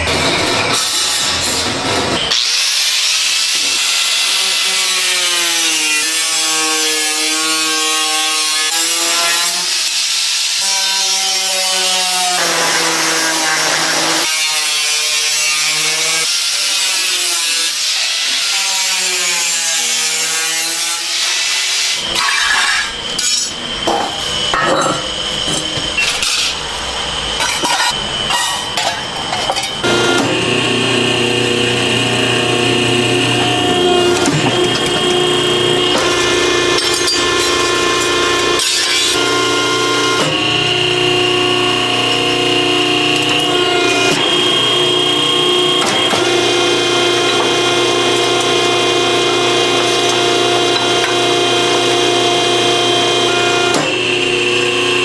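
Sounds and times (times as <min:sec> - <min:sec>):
tool grinding with whine: 0:00.0 - 0:55.0
scraping and clattering: 0:22.2 - 0:29.8.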